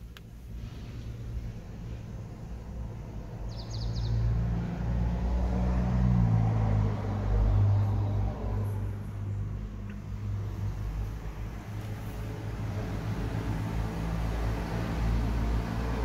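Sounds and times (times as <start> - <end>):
car engine idling: 7.0 - 16.0.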